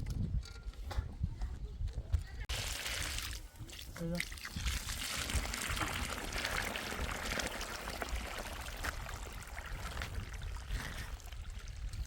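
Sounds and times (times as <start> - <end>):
running water trickling: 2.5 - 12.0.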